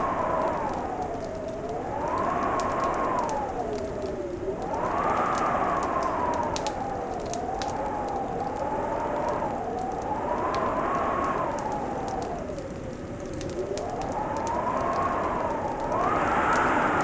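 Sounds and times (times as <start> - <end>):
fireplace fire crackling: 0.0 - 17.0
wind whooshing: 14.4 - 17.0.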